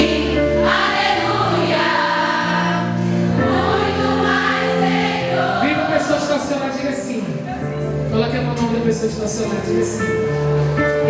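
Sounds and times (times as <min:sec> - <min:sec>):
voices singing together: 0:00.0 - 0:06.5
held chords: 0:00.0 - 0:11.0.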